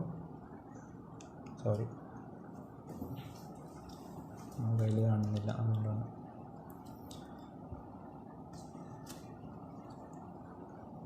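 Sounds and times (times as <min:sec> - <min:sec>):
steady low hiss: 0:00.0 - 0:11.0
faint clicks and rustles: 0:00.8 - 0:06.0.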